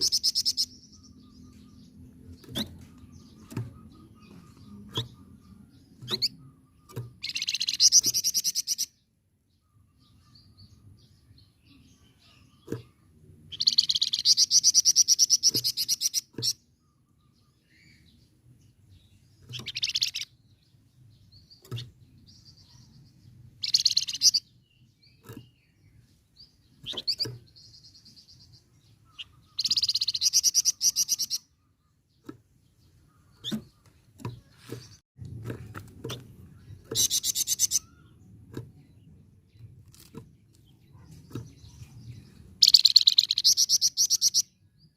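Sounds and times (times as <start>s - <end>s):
songbird rattling song: 0.0s - 44.9s.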